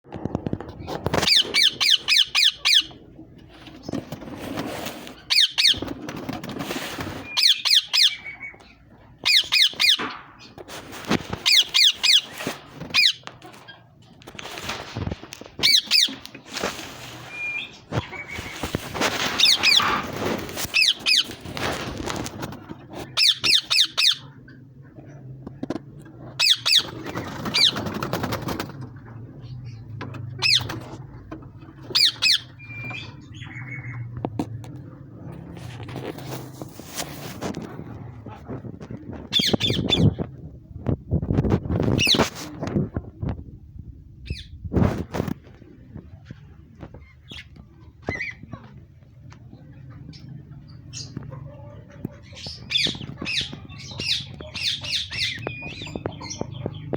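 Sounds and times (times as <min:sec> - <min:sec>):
parakeets screeching: 0:01.1 - 0:03.1, 0:05.1 - 0:06.3, 0:06.9 - 0:10.6, 0:11.3 - 0:13.8, 0:15.6 - 0:21.8, 0:23.0 - 0:24.6, 0:26.3 - 0:28.5, 0:29.4 - 0:34.1, 0:39.3 - 0:40.2, 0:52.2 - 0:56.9.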